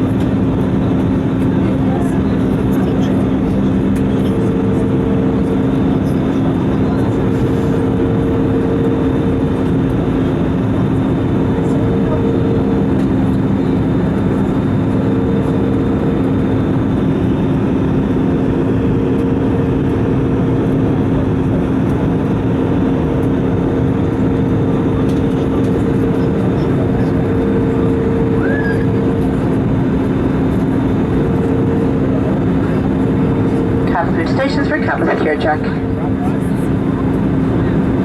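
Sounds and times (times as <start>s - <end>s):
jet engine and airflow roar: 0.0s - 38.0s
steady low hum: 0.0s - 38.0s
higher hum: 21.9s - 37.4s.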